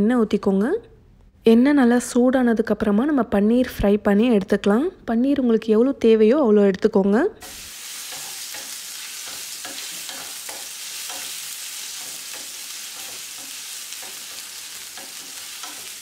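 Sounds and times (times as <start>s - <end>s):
food sizzling in oil: 7.4s - 16.0s
wooden spatula scraping and tapping: 8.1s - 16.0s.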